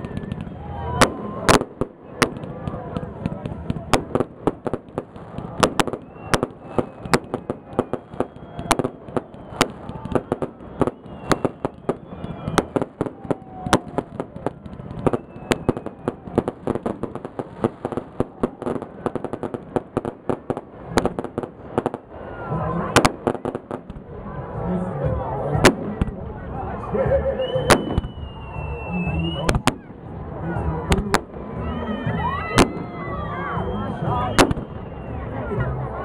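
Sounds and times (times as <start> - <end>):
fireworks bangs and crackles: 0.0 - 36.0
whistles of rising shells: 5.8 - 13.8, 15.1 - 16.2, 27.4 - 29.7, 32.6 - 35.3.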